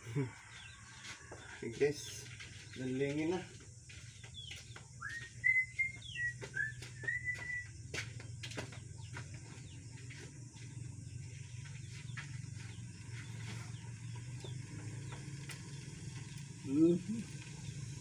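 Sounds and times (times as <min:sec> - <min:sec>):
steady low hum: 0:03.4 - 0:18.0
whistled notes: 0:05.0 - 0:07.8.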